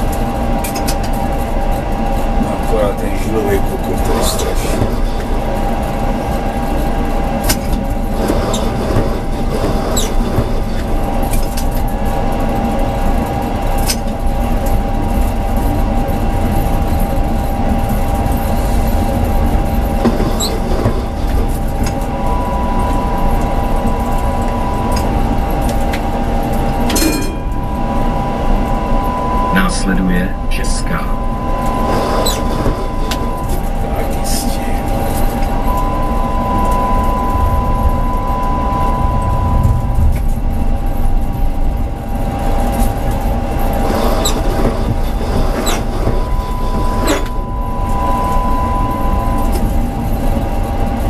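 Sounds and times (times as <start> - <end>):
higher whine: 0.0 - 51.0
tram wheels rumbling on rail: 0.0 - 51.0
electric motor whine: 15.9 - 51.0.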